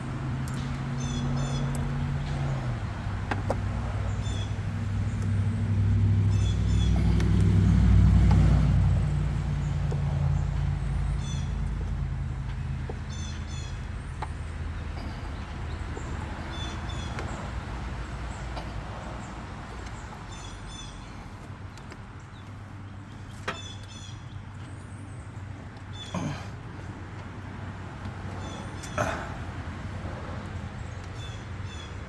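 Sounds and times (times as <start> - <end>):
vehicle engine passing by: 0.0 - 21.4
birds chirping: 0.0 - 32.0.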